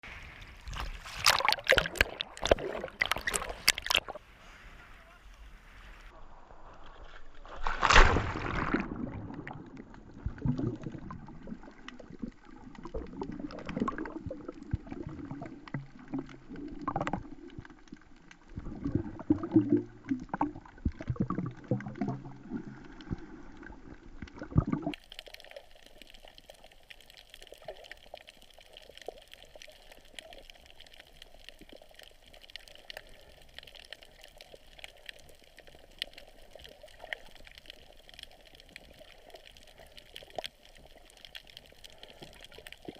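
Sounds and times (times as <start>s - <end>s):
water sloshing and gurgling: 0.0s - 4.5s, 5.8s - 42.9s
bubbling: 0.4s - 4.2s, 7.7s - 42.9s.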